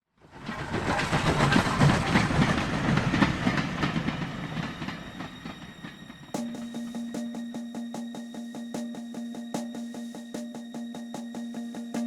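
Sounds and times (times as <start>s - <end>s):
model train rumble: 0.2s - 6.4s
wheels clicking over rail joints: 0.3s - 6.4s.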